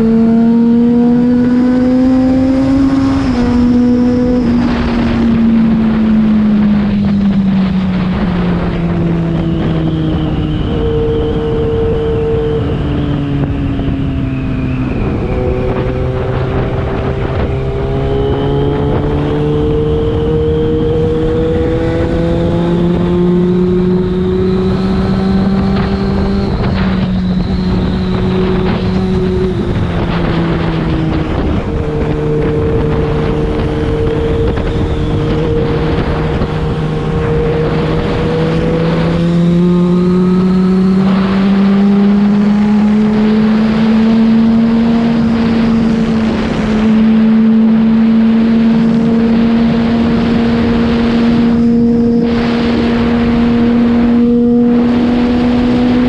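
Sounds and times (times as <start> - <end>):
motorcycle engine while riding: 0.0 - 56.0.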